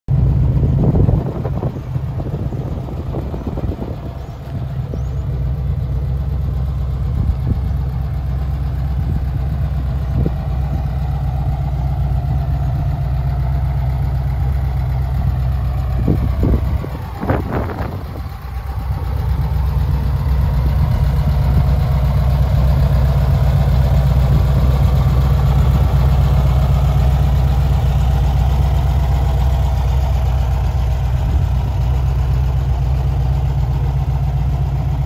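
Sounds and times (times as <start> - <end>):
engine idling: 0.1 - 35.0.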